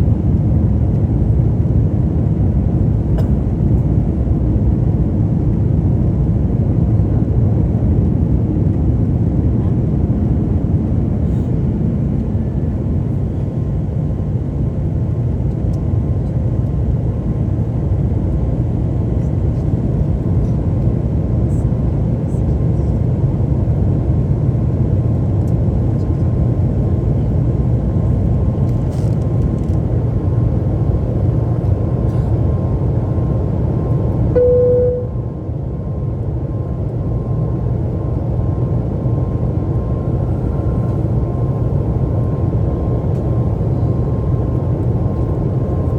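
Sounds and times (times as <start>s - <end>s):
faint constant hum: 0.0s - 45.9s
jet engines and airflow roar: 0.0s - 45.9s
short tone: 34.4s - 35.5s.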